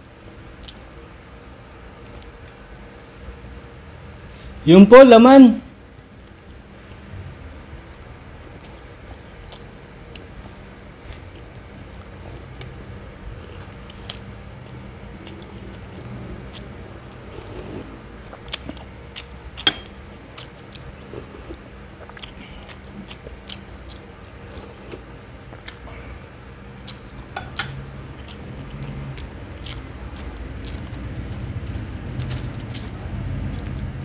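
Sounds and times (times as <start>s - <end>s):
man chewing with wet smacks: 0.4s - 0.8s, 7.9s - 26.1s, 26.7s - 34.0s.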